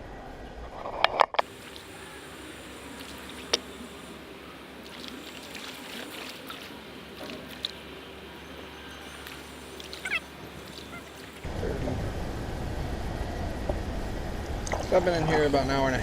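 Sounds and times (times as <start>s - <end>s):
water lapping around kayak: 1.4s - 11.5s.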